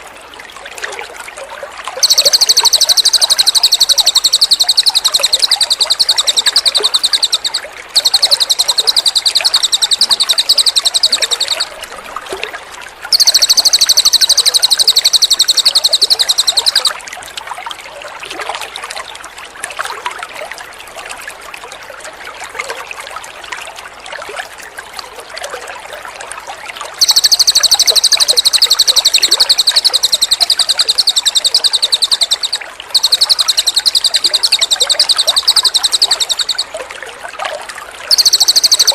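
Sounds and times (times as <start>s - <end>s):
trickling water: 0.0s - 38.9s
songbird trilling: 2.0s - 11.9s, 13.1s - 16.9s, 27.0s - 36.8s, 38.1s - 38.9s.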